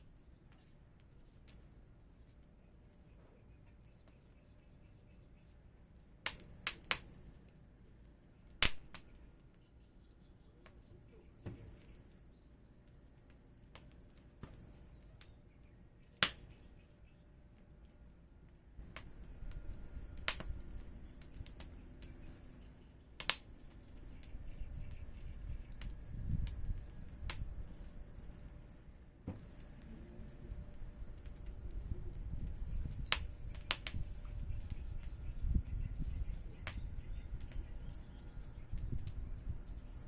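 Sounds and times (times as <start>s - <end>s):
low rumble of fire: 0.0s - 40.0s
wood fire crackling: 0.0s - 40.0s
sharp pops from firewood: 6.2s - 7.5s, 8.5s - 9.3s, 16.1s - 16.7s, 18.8s - 19.2s, 20.2s - 20.6s, 23.2s - 23.6s, 32.9s - 34.1s, 36.6s - 37.6s.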